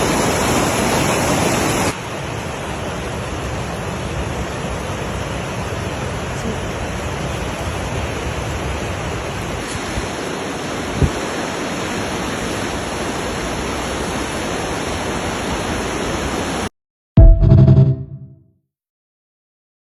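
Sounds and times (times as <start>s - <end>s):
fast-flowing mountain water: 0.0s - 16.7s
loud music: 17.2s - 18.3s.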